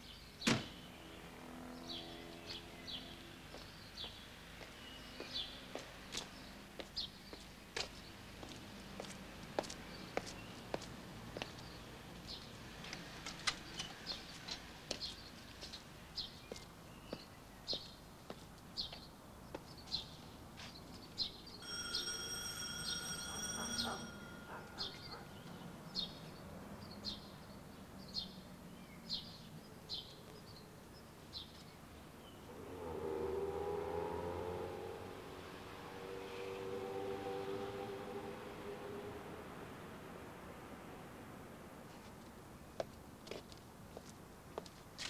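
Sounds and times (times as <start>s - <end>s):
electric doorbell buzzing: 21.6s - 25.2s.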